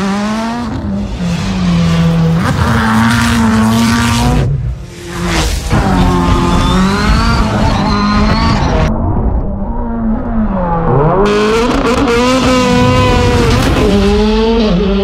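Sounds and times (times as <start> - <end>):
car engine revving hard: 11.2 - 15.0.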